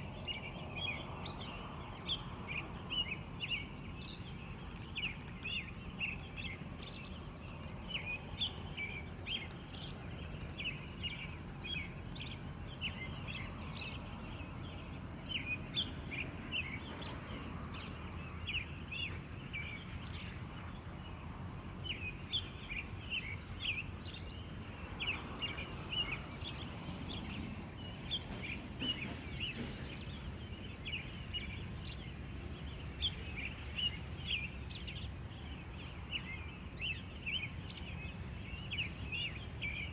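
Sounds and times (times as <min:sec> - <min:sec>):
insect trill: 0:00.0 - 0:39.9
birds chirping: 0:21.8 - 0:39.9.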